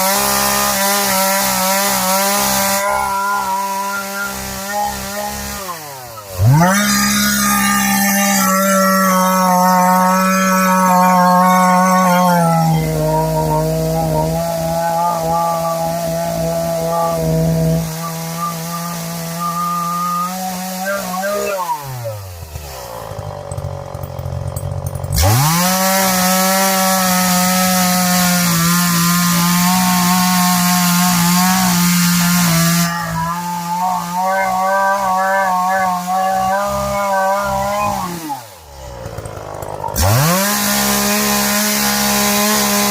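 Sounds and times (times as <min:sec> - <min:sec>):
chainsaw revving and idling: 0:00.0 - 0:42.9.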